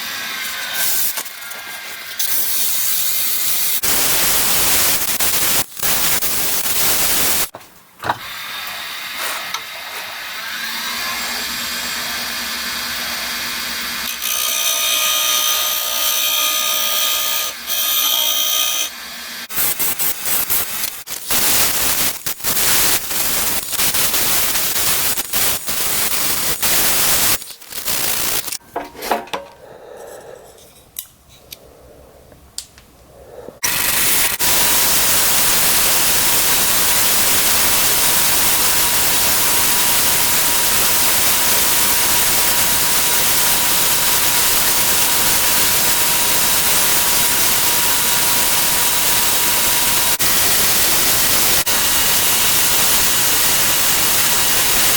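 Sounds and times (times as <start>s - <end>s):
wood lathe turning: 9.5s - 21.5s
loud even hiss: 19.5s - 28.6s.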